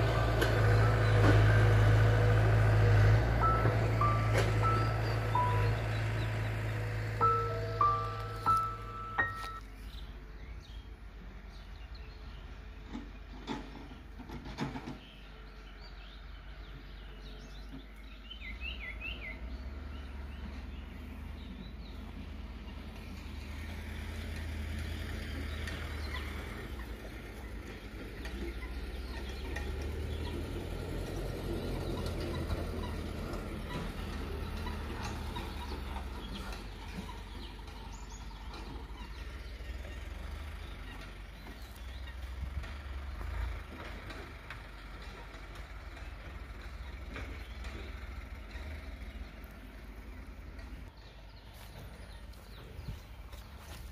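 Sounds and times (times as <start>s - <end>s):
heavy machine engine rumbling: 0.0s - 53.9s
bird chirping: 3.4s - 23.2s, 25.2s - 43.4s.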